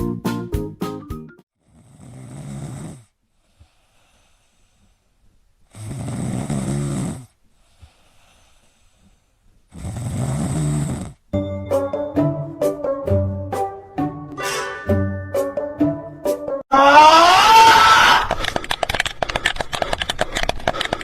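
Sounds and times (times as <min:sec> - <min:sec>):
pet snoring: 0:01.6 - 0:04.7, 0:05.7 - 0:09.0, 0:09.7 - 0:11.3
faint breaths: 0:02.9 - 0:11.3, 0:18.3 - 0:21.0.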